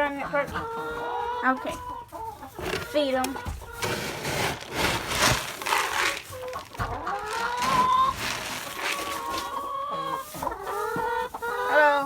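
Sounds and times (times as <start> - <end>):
chickens clucking and calling: 0.0 - 12.0.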